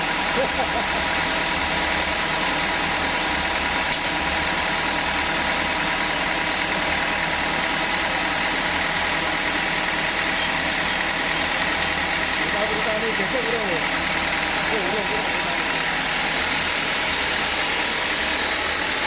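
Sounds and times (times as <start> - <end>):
sawmill saw running: 0.0 - 19.0.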